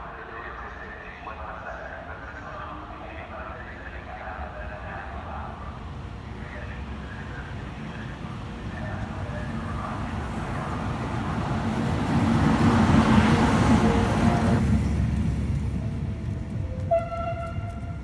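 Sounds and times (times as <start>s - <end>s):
train passing: 0.0s - 18.0s.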